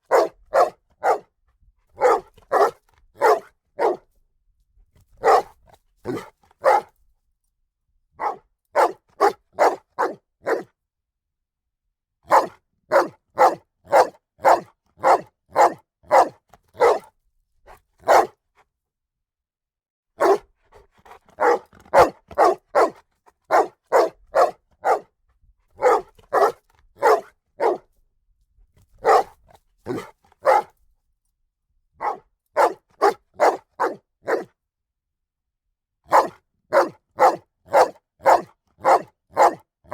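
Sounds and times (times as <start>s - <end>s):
dog barking: 0.0s - 1.3s, 2.0s - 4.1s, 5.2s - 6.9s, 8.2s - 10.7s, 12.3s - 17.1s, 17.7s - 18.4s, 20.2s - 25.1s, 25.8s - 27.9s, 29.0s - 30.8s, 32.0s - 34.6s, 36.1s - 39.9s.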